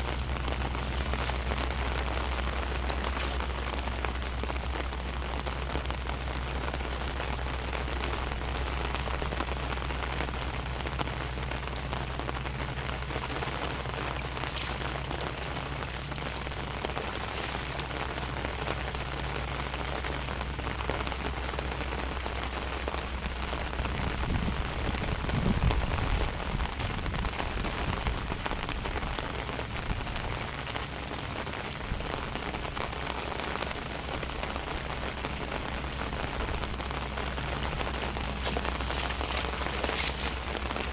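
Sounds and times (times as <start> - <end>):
low steady hum: 0.0 - 40.9
steady rain falling: 0.0 - 40.9.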